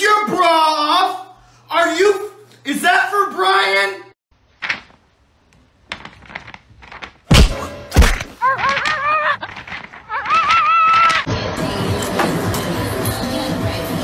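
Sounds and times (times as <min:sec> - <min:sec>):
heavy thumps: 0:05.8 - 0:11.2.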